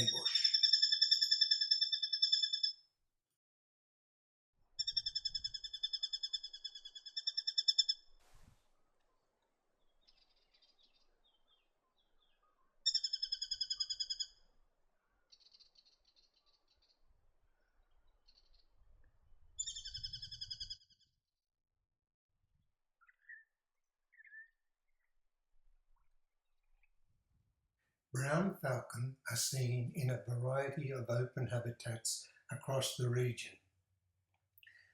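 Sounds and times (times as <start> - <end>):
small birds calling: 0.0 - 2.8, 4.8 - 8.2, 9.8 - 18.8, 19.6 - 21.1, 23.0 - 25.1.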